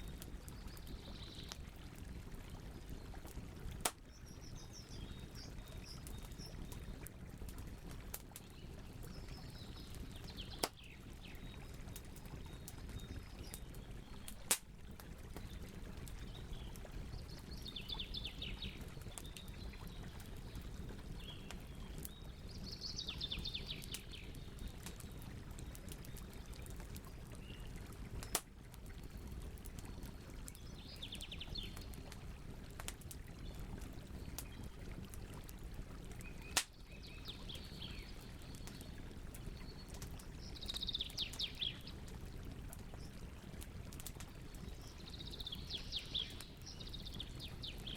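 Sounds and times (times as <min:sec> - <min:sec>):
campfire crackling and popping: 0:00.0 - 0:47.9
bird singing trilled phrases: 0:39.6 - 0:41.9.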